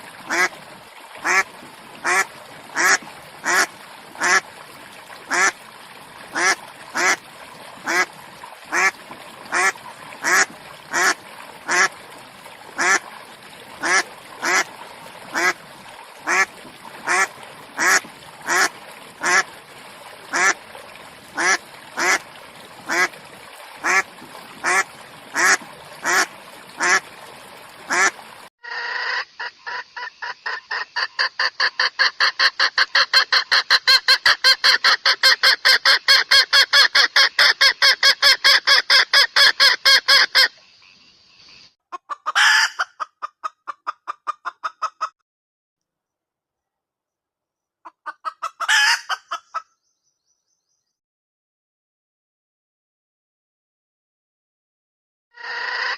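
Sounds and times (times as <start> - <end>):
duck quacking: 0.3 - 0.5, 1.2 - 2.2, 2.8 - 4.4, 5.3 - 5.6, 6.3 - 7.2, 7.8 - 8.1, 8.7 - 11.9, 12.8 - 13.0, 13.8 - 14.7, 15.3 - 15.6, 16.2 - 19.4, 20.3 - 20.6, 21.4 - 22.2, 22.9 - 23.1, 23.8 - 24.0, 25.4 - 27.0, 27.9 - 40.5.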